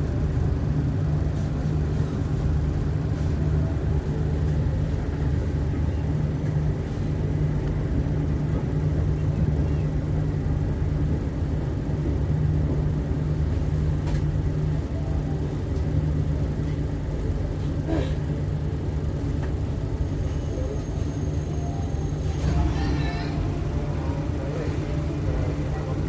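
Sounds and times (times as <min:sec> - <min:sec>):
train carriage rumble and hum: 0:00.0 - 0:26.0.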